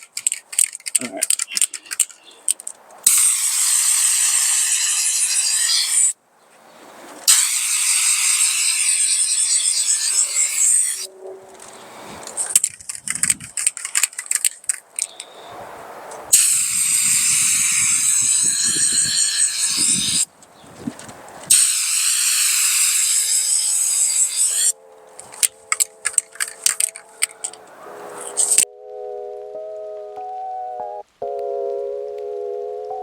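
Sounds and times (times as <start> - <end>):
spray can rattling: 0.0 - 6.0, 12.2 - 15.3, 21.5 - 27.6
spray can hissing: 3.1 - 6.1, 7.3 - 11.1, 21.5 - 24.7.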